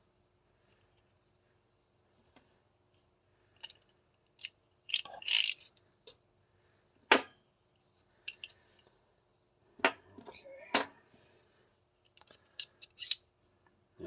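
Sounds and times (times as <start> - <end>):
pistol parts clicking and clinking: 3.6 - 6.2, 8.2 - 8.6, 12.0 - 13.3.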